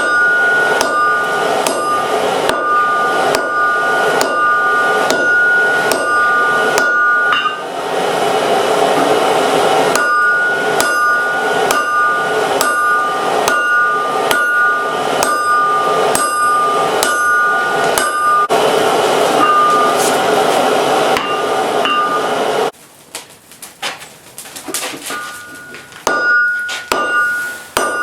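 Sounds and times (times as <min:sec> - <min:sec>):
hammer ringing on anvil: 0:00.0 - 0:07.7, 0:09.0 - 0:18.6, 0:19.3 - 0:20.4, 0:21.1 - 0:22.5, 0:25.0 - 0:28.0.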